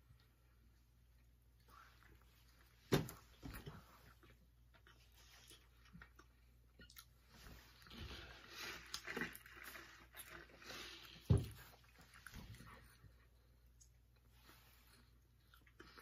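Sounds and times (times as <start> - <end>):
people chewing: 3.5 - 16.0.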